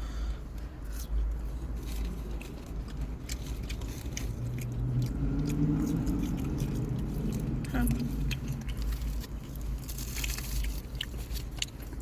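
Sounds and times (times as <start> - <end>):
low drawn-out hum: 0.0 - 12.0
steady low rumble: 0.0 - 12.0.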